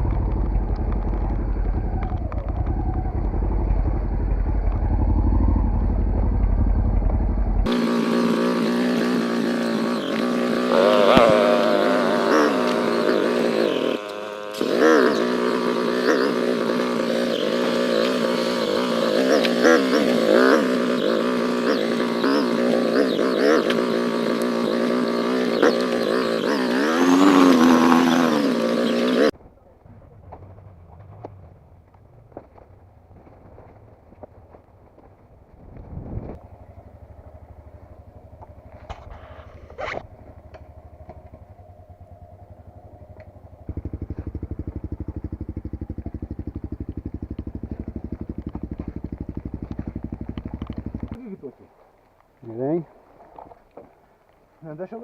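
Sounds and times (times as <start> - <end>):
motorcycle engine revving: 0.0 - 51.6.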